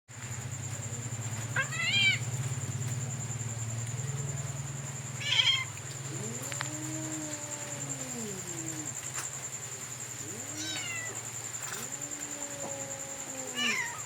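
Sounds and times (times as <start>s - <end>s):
low pulsing hum: 0.1s - 10.6s
kitten meowing: 1.6s - 2.2s, 5.2s - 5.7s, 10.5s - 11.2s.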